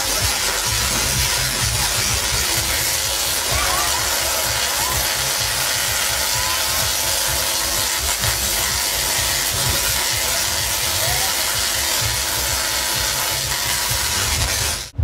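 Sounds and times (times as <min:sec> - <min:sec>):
tesla coil buzzing crackle: 0:00.0 - 0:15.0
low thumps: 0:13.5 - 0:15.0.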